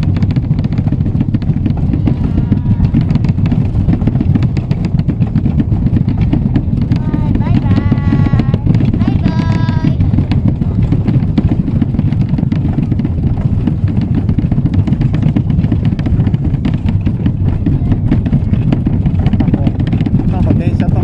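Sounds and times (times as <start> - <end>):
miniature train rumbling on track: 0.0 - 21.0
child's voice: 6.9 - 10.1, 17.6 - 18.2.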